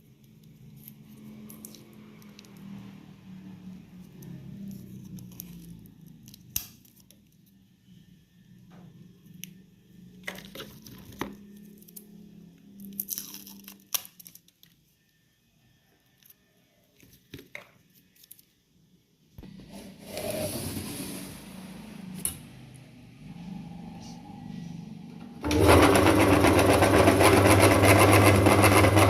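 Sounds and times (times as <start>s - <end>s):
electric meat grinder motor hum: 25.4s - 29.0s.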